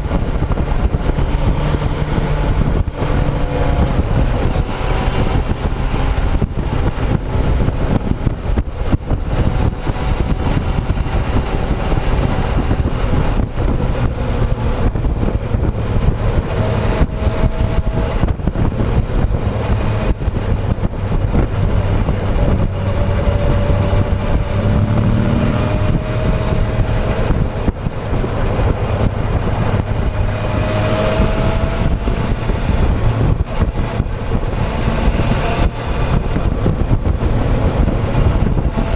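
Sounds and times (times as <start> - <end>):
motorcycle engine: 0.0 - 38.9
wind buffeting microphone: 0.0 - 38.9.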